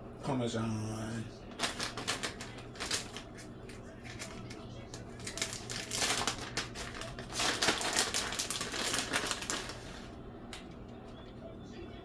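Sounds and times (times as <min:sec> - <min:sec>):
cheese container shaken and rattling: 0:01.6 - 0:09.9.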